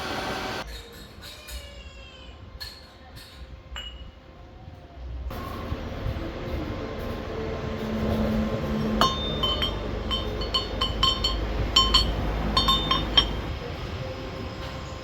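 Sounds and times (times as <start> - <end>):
steady low rumble: 5.3 - 15.0
metal-on-metal clinks: 9.0 - 13.7.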